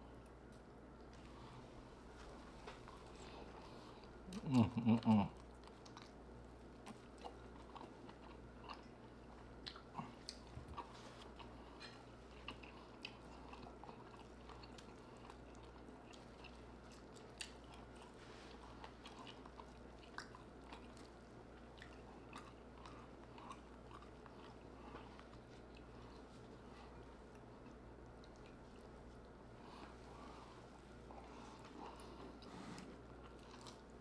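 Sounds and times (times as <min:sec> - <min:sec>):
steady low hum: 0:00.0 - 0:34.0
wet chewing smacks: 0:05.3 - 0:30.0.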